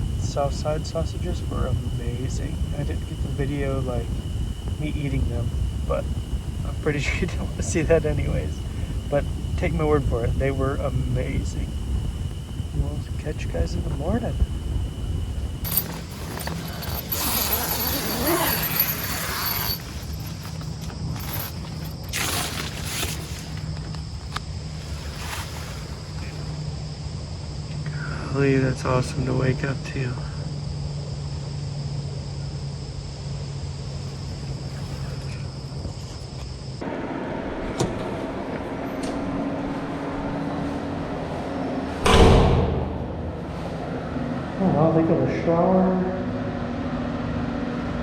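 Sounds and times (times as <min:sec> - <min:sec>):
steady background rush: 0:00.0 - 0:27.8, 0:36.6 - 0:48.0
tent zipper being pulled: 0:15.6 - 0:23.6, 0:24.8 - 0:26.4
door banging: 0:41.9 - 0:44.1.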